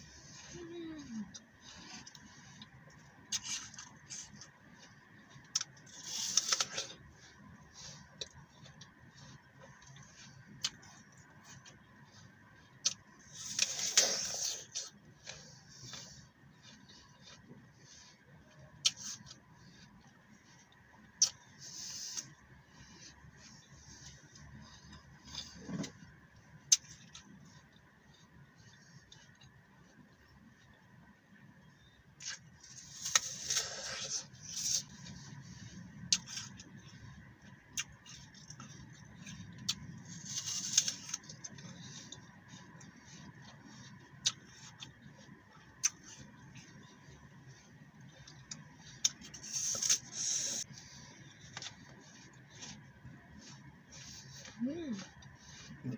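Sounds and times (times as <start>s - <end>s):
soft chewing: 0.0s - 55.9s
apple crunching: 1.3s - 7.4s, 31.8s - 55.9s.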